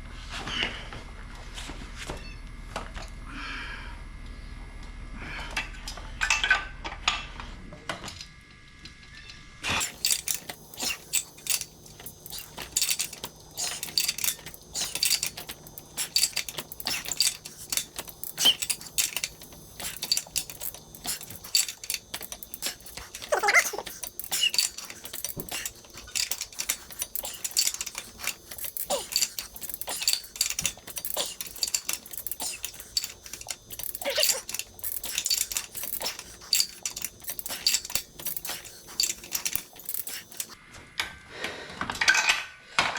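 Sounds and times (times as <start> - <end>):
metal tools clinking and clattering: 9.8 - 40.6.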